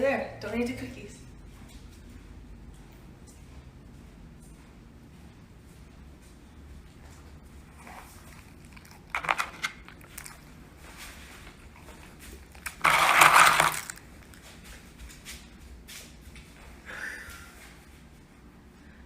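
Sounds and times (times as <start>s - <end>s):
dog crunching a cookie: 7.6s - 15.2s.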